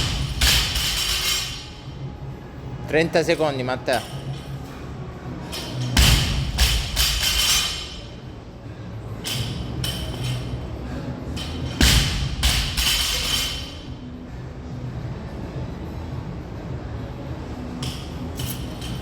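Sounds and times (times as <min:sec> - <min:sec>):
barbell bouncing: 0:00.0 - 0:01.7, 0:05.7 - 0:08.0, 0:11.4 - 0:13.8
music: 0:00.0 - 0:19.0.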